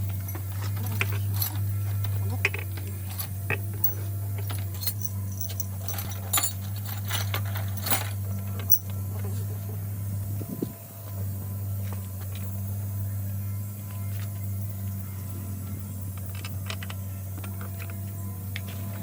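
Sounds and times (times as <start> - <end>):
metal parts and tools clinking: 0.0 - 9.0, 16.1 - 18.0
steady low hum: 0.0 - 19.0.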